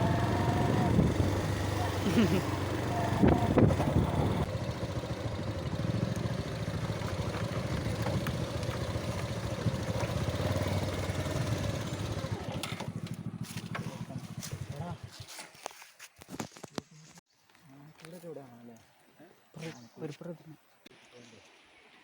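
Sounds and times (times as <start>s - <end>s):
motorcycle engine idling: 0.0s - 15.1s.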